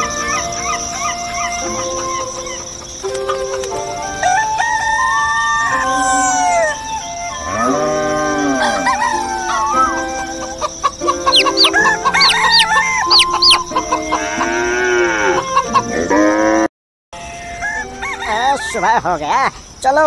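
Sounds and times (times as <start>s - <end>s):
chickens clucking: 0.0s - 3.9s, 8.4s - 16.0s
background music: 0.0s - 16.4s
rooster crowing: 4.2s - 15.6s, 17.2s - 18.9s
high rapid chirps: 11.1s - 13.8s.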